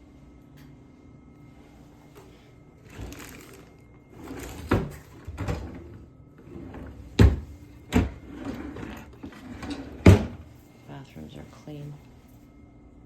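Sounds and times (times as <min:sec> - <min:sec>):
doors banging shut: 0:07.1 - 0:08.3, 0:09.6 - 0:10.4.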